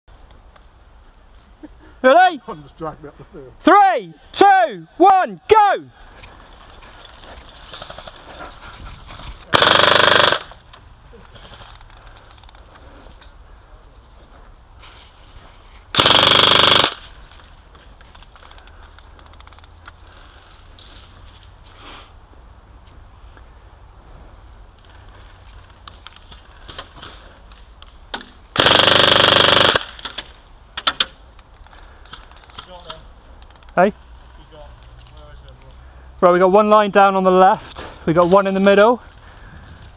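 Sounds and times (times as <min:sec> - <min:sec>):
airsoft gun full-auto burst: 0:09.5 - 0:10.6, 0:15.9 - 0:17.1, 0:28.6 - 0:30.0.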